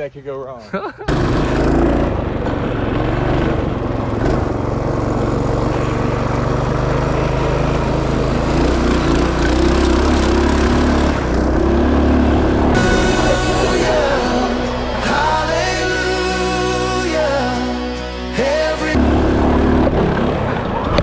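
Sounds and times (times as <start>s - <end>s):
minibike engine running: 1.1s - 13.4s, 19.0s - 21.0s.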